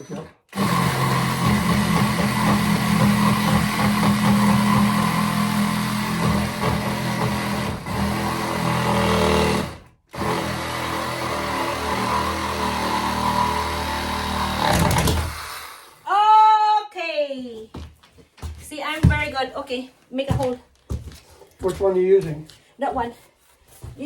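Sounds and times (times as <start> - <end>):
electric power tool cutting wood: 0.5 - 16.0.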